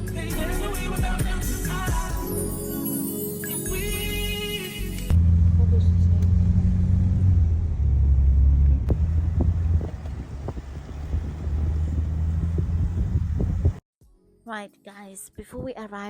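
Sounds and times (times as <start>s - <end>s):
vehicle rumble in motion: 5.0s - 13.8s.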